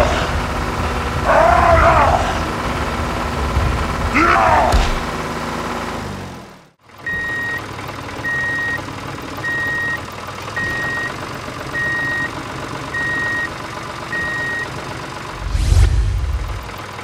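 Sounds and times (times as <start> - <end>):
engine running: 0.0 - 17.0
reversing alarm beeping: 7.0 - 8.8, 9.4 - 10.0, 10.6 - 14.7.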